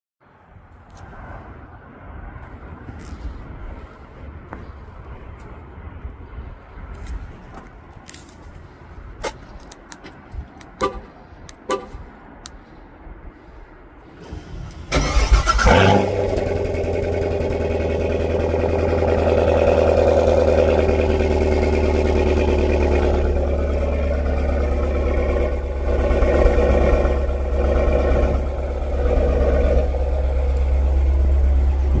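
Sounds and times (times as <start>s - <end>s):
car engine starting and idling: 14.0s - 32.0s.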